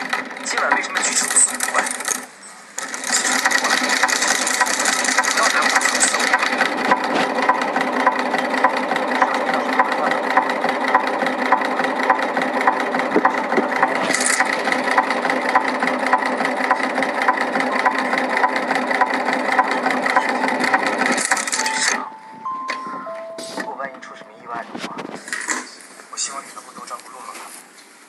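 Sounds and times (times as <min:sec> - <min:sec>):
machine humming: 0:00.0 - 0:25.5
machine ticking: 0:02.8 - 0:23.0.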